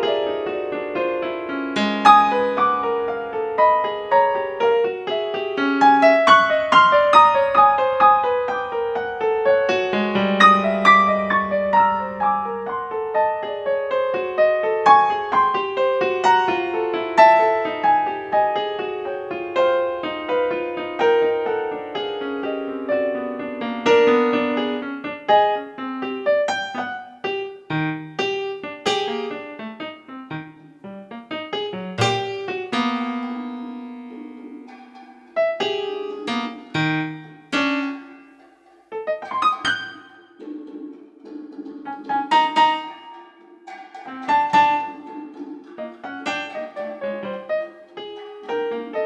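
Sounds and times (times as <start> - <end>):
solo piano playing: 0.0 - 40.5, 41.8 - 49.0.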